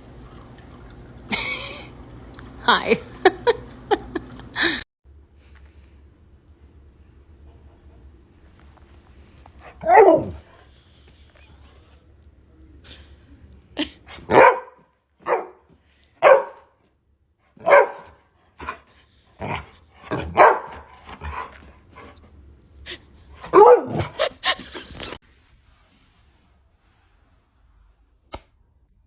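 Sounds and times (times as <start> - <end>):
dog barking: 9.6 - 10.5, 14.2 - 16.8, 17.6 - 18.8, 19.4 - 21.5, 23.4 - 24.3.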